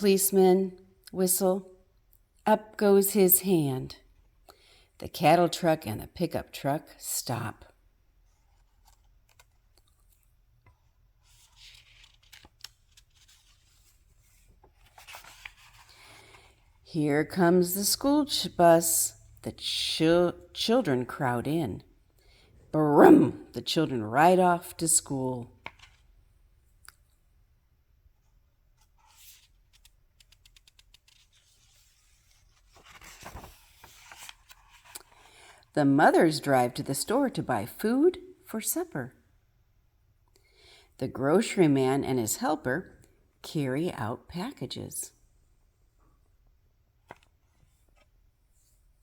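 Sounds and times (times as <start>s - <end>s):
paper page rustling: 8.4s - 16.7s, 28.7s - 35.5s, 47.0s - 48.8s.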